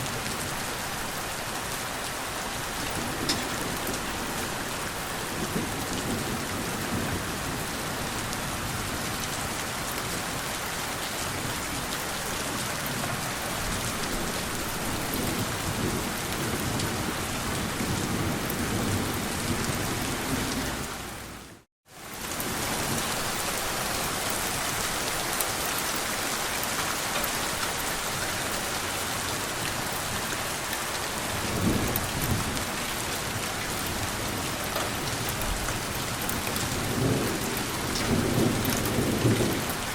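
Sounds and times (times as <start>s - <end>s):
steady rain falling: 0.0s - 39.9s
low rolls of thunder: 31.3s - 39.9s.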